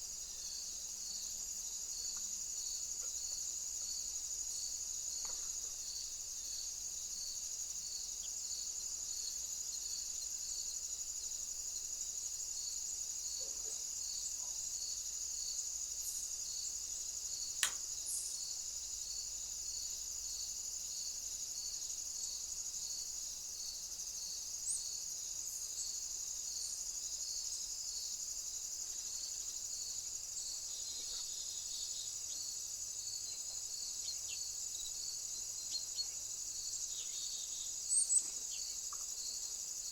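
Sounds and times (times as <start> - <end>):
crickets trilling: 0.0 - 39.9
sharp click: 17.6 - 17.9.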